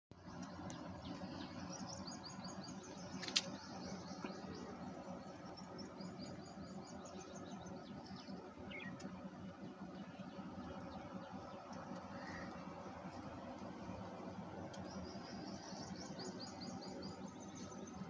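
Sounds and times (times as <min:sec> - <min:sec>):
small birds chirping: 0:00.2 - 0:18.0
sharp click: 0:03.2 - 0:03.6.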